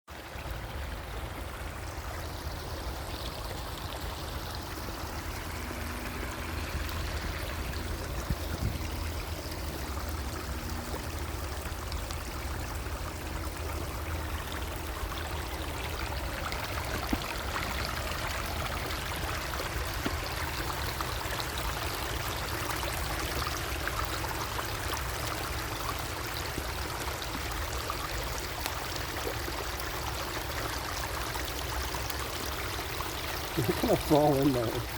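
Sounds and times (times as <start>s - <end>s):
stream water bubbling: 0.1s - 34.9s.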